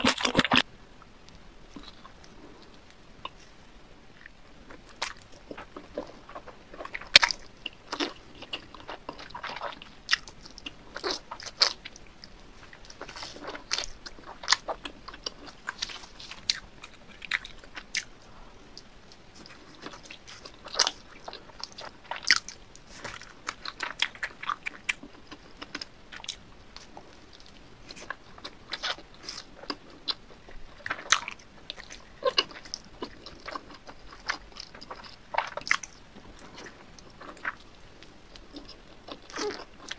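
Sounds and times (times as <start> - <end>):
pizza crust crunching: 12.6 - 17.9.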